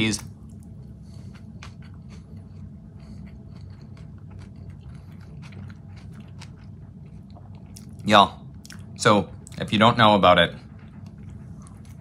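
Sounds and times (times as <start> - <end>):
low steady hum: 0.0 - 12.0
person chewing with mouth closed: 0.6 - 8.0.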